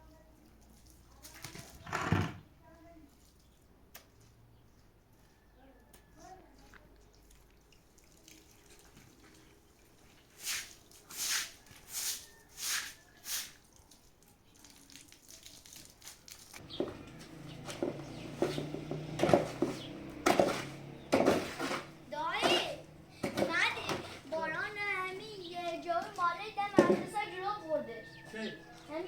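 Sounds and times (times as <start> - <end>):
water splashing: 7.0 - 29.0.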